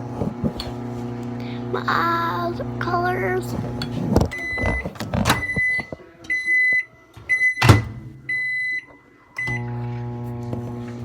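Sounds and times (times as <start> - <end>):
microwave oven humming: 0.0 - 11.0
keypad beeps: 4.3 - 9.6.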